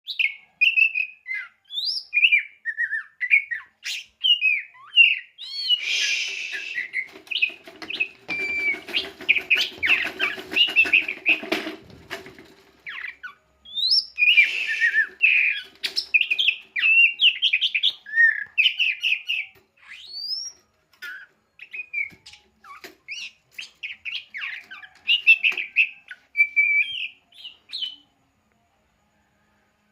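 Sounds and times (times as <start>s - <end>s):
songbird singing varied song: 0.1s - 11.5s, 12.8s - 28.7s
rustling noise: 5.9s - 13.0s.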